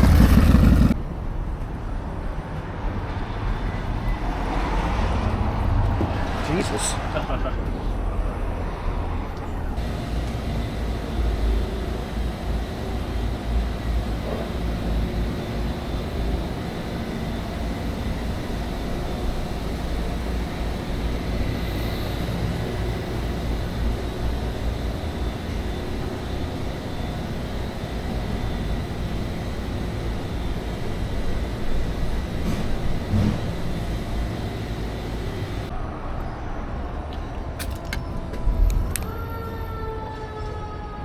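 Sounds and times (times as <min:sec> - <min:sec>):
pickup truck engine and road rumble: 0:00.0 - 0:01.6.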